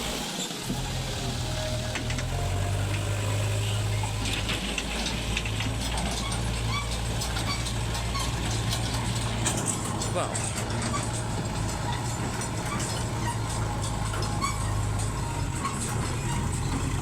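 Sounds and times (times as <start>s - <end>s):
heavy diesel machinery humming: 0.0s - 17.0s
clicks and rattles: 4.0s - 17.0s.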